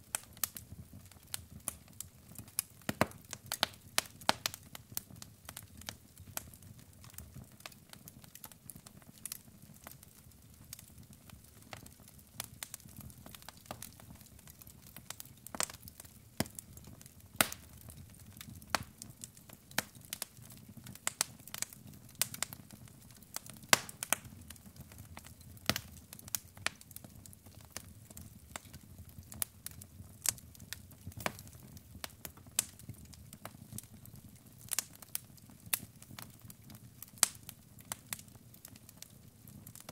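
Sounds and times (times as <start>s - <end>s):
log fire crackling and popping: 0.0s - 39.9s.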